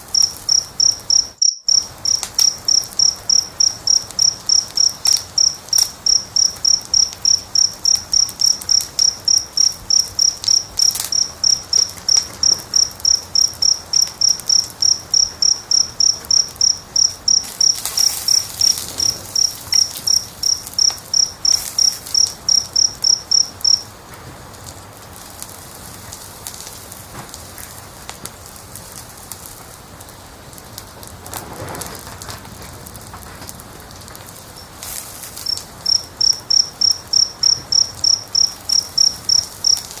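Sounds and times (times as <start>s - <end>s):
cricket chirping: 0.0s - 23.9s, 34.5s - 40.0s
wood fire crackling and popping: 0.0s - 40.0s.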